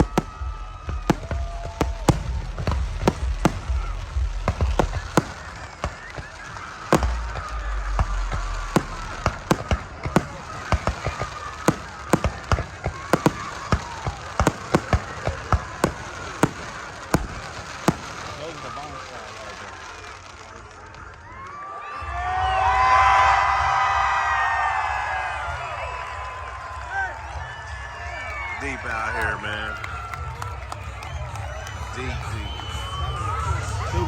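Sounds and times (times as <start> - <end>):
low rumbling booms: 0.0 - 6.0, 6.9 - 13.5
fireworks popping and banging: 0.0 - 21.6
crowd voices: 0.0 - 34.0.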